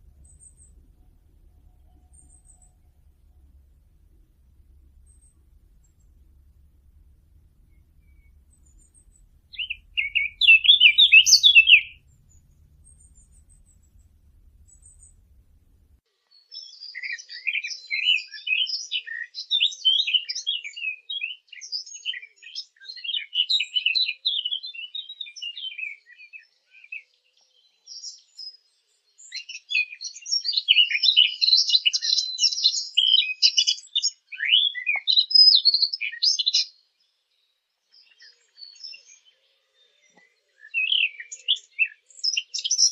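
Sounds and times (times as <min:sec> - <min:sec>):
songbird twittering: 0:00.0 - 0:16.0, 0:37.9 - 0:42.9.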